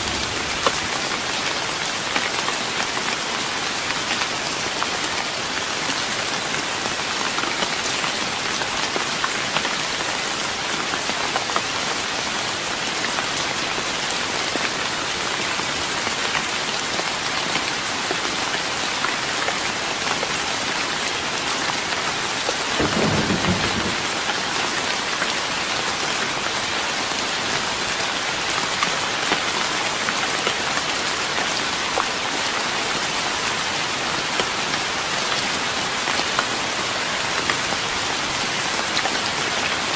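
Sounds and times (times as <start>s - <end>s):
low rumble: 0.0s - 1.4s
rain pattering on wooden deck: 0.0s - 39.9s.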